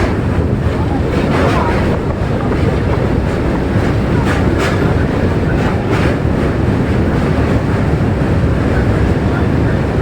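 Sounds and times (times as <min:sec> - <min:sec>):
train wheels clacking: 0:00.0 - 0:09.2
train rumbling on rails: 0:00.0 - 0:10.0.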